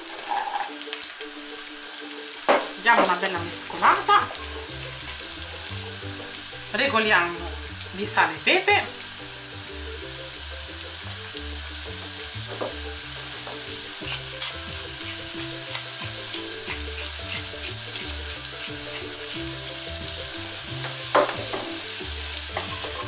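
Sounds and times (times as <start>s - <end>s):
pumpkin sizzling in a pan: 0.0s - 23.0s
pepper mill grinding: 3.7s - 6.8s, 12.0s - 23.0s
spatula scraping and stirring: 13.5s - 19.9s.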